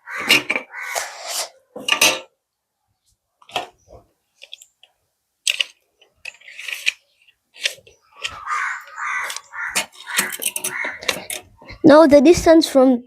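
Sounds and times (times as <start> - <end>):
tools clicking knocking and scraping: 5.4 - 11.6.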